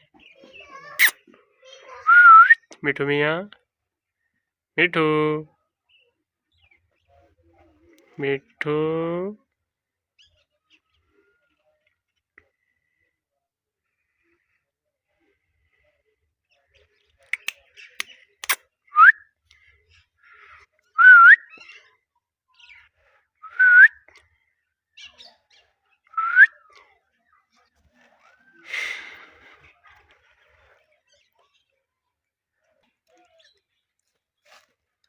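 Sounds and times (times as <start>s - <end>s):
harsh parrot chirp: 0.3s - 2.7s
sharp clicks: 17.4s - 18.6s
parrot whistling: 21.0s - 21.4s, 26.2s - 26.5s.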